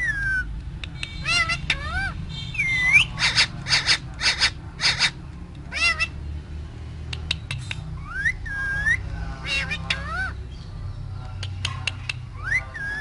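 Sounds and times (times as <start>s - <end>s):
parrot calling: 0.0s - 6.2s, 7.9s - 10.4s, 12.3s - 13.0s
parrot clicks: 0.6s - 1.8s, 7.1s - 7.9s, 11.2s - 12.2s.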